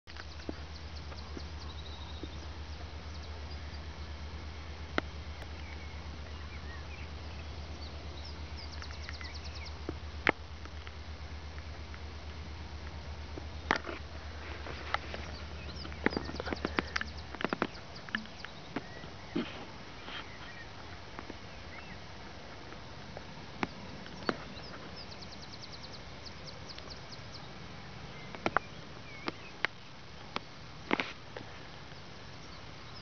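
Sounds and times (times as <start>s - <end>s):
steady low hum: 0.1s - 33.0s.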